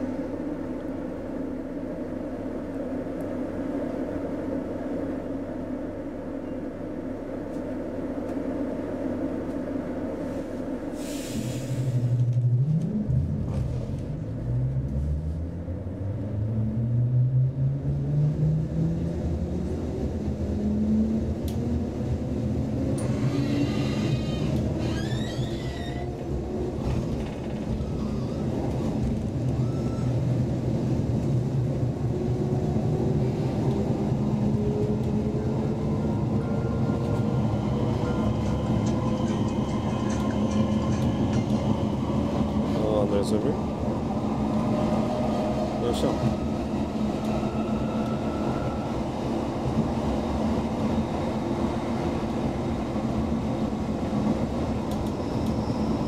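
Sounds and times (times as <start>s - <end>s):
wheels rumbling on track: 0.0s - 56.0s
high squeal: 23.0s - 26.1s.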